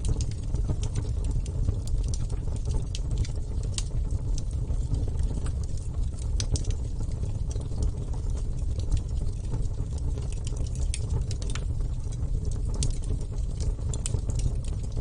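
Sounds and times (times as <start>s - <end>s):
bonfire flame rumble: 0.0s - 15.0s
fire crackling and popping: 0.0s - 15.0s.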